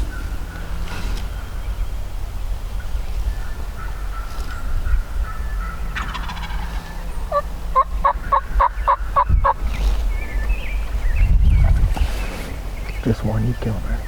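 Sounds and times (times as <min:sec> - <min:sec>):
wind rumble on microphone: 0:00.0 - 0:14.0
turkey gobble: 0:02.8 - 0:09.6
turkey yelps: 0:03.7 - 0:09.6.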